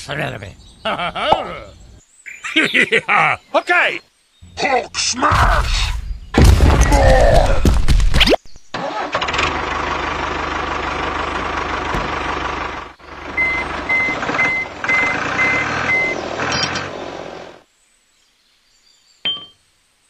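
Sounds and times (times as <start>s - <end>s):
tractor engine running: 8.8s - 17.6s
reversing alarm beeps: 13.4s - 16.2s.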